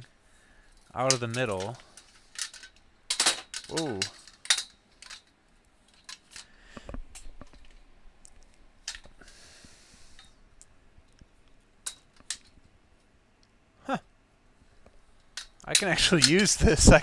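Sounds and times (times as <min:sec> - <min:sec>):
metal tubing clicks and clinks: 0:15.2 - 0:16.6.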